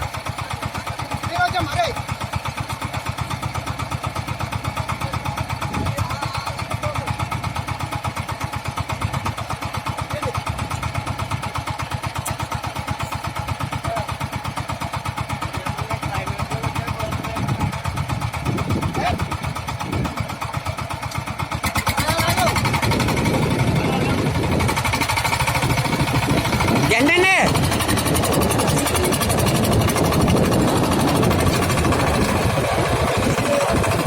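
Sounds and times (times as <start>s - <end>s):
diesel engine chugging: 0.0s - 34.0s
faint voices: 28.2s - 29.7s.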